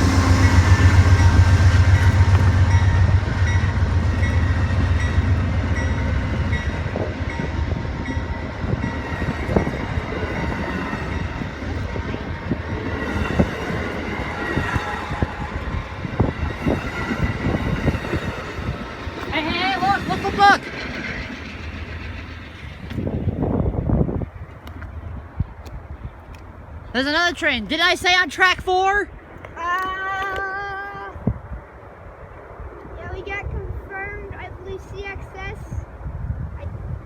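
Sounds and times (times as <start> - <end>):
locomotive rumble: 0.0 - 27.0.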